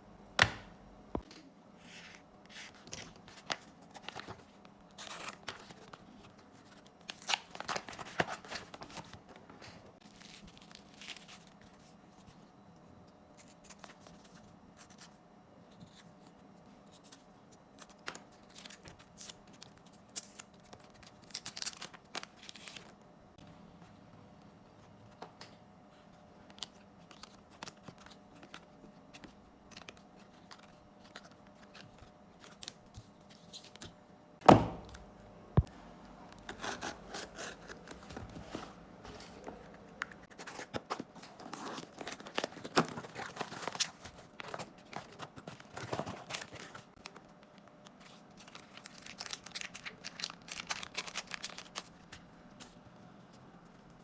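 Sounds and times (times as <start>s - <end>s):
wrapping tearing and crinkling: 17.8s - 23.0s, 47.9s - 52.2s
sharp thunk: 34.4s - 35.0s.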